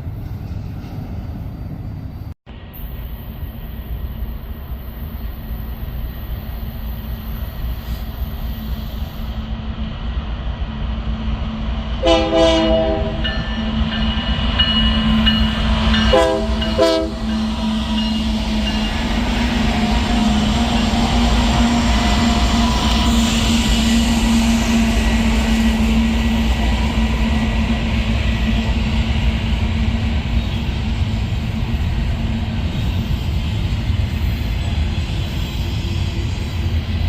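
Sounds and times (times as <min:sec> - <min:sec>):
diesel locomotive rumble: 0:00.0 - 0:37.0
train air horn: 0:12.0 - 0:13.3, 0:16.0 - 0:18.8.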